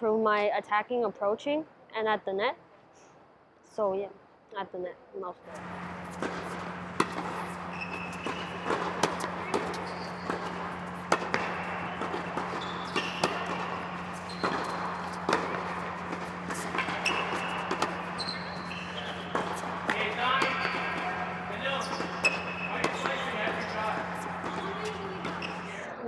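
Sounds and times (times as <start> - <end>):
low hum in hall: 0.0 - 26.0
shoe squeaks: 5.5 - 25.8
tennis balls struck by rackets: 5.5 - 25.8.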